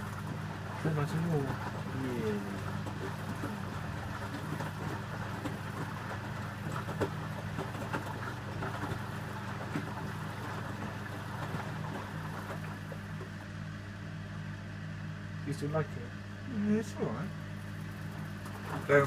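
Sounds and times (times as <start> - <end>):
water churning and sloshing: 0.0 - 13.5, 17.0 - 19.0
washing machine motor hum: 0.0 - 19.0.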